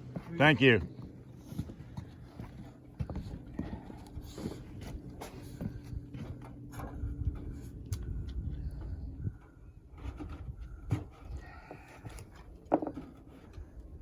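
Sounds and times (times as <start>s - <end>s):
footsteps on roof: 0.0s - 7.6s.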